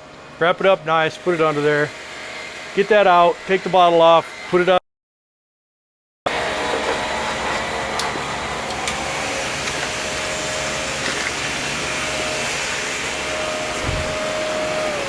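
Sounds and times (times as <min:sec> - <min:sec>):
motor whooshing and humming: 0:06.3 - 0:15.0.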